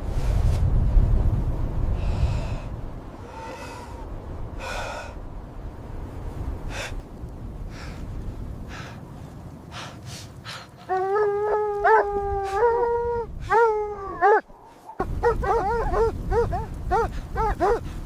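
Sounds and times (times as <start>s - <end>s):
heavy gasping breaths: 2.0s - 5.2s.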